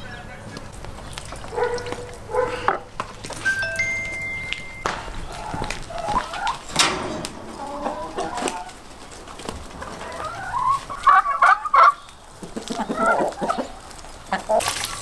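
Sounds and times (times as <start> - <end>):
fowl clucking: 1.4 - 2.9, 4.9 - 15.0.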